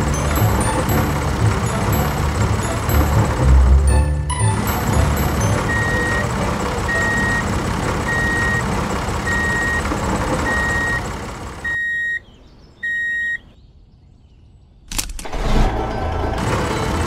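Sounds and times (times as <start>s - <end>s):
toy engine rumble: 0.0s - 11.7s
high reversing beeps: 4.3s - 9.8s, 10.4s - 12.2s, 12.8s - 13.5s.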